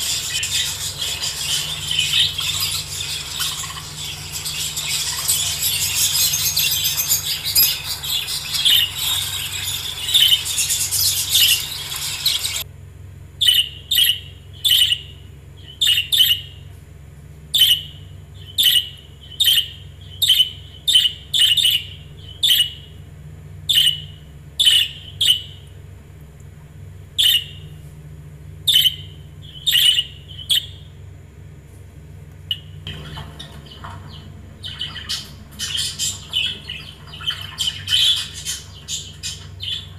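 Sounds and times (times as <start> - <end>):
budgerigars chattering: 0.0 - 12.6, 28.7 - 30.8, 32.5 - 39.9.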